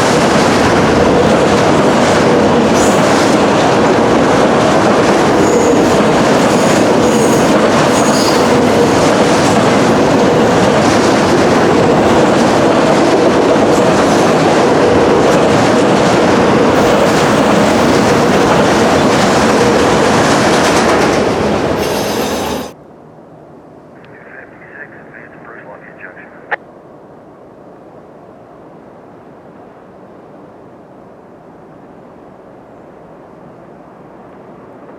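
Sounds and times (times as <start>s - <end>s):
freight train cars clattering: 0.0s - 22.8s.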